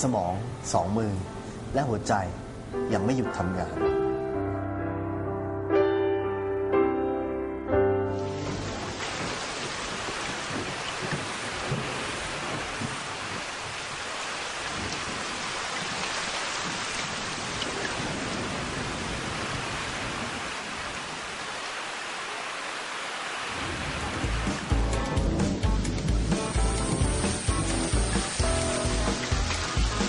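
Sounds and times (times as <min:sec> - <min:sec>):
heavy rain: 0:08.1 - 0:30.0.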